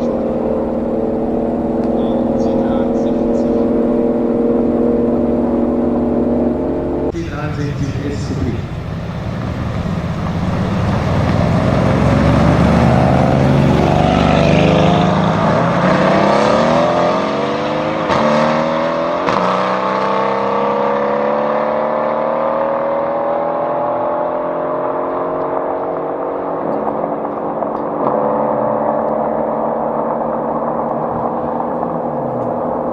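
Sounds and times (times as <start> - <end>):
exhaust cracks on upshift: 0.0 - 16.8, 25.3 - 32.9
car exhaust accelerating: 0.0 - 32.9.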